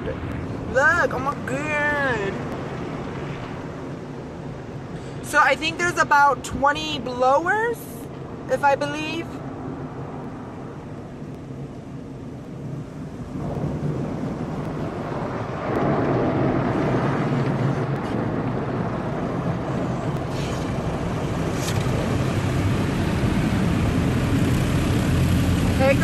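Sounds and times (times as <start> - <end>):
car wash dryer blowers rushing: 18.2 - 26.0.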